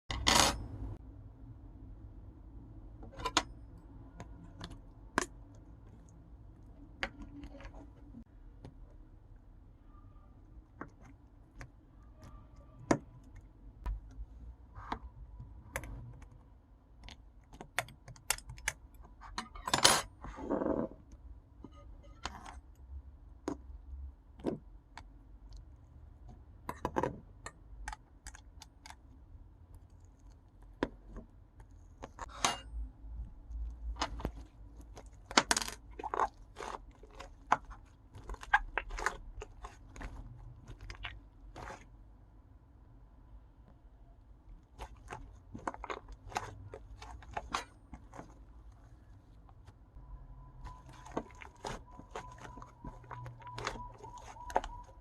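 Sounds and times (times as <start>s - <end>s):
slime squishing: 3.1s - 19.4s, 33.0s - 42.3s, 43.6s - 55.0s.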